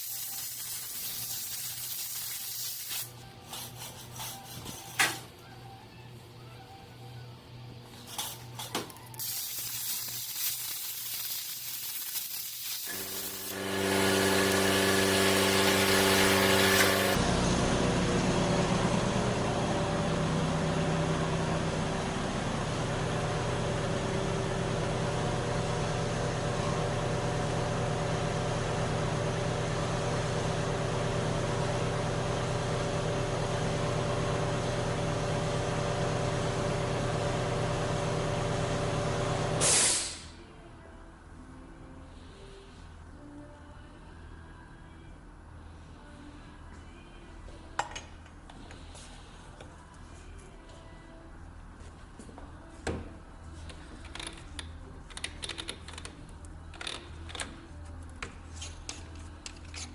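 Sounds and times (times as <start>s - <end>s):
hiss: 0.0s - 3.1s, 9.2s - 17.2s, 39.6s - 40.4s
machine hum: 3.2s - 39.6s.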